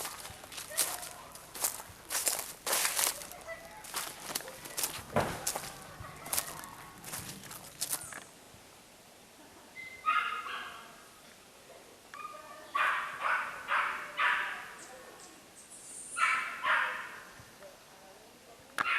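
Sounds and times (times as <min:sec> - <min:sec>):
dog barking: 0:10.0 - 0:10.9, 0:12.2 - 0:14.8, 0:16.2 - 0:17.2.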